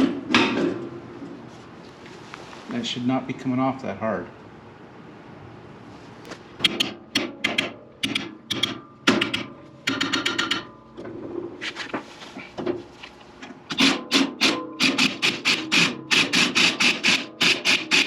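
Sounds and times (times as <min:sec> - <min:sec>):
ratchet wrench clicking: 0:06.6 - 0:10.7, 0:13.7 - 0:18.0.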